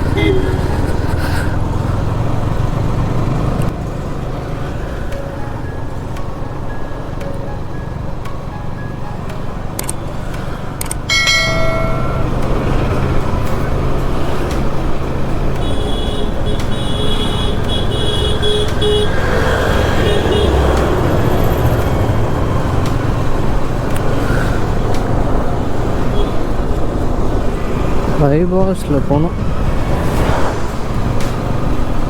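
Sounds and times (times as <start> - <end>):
vehicle horns honking: 0.0 - 1.2, 15.5 - 21.2, 26.0 - 26.6
motorcycle engine: 0.0 - 32.0
road and wind noise: 0.0 - 32.0.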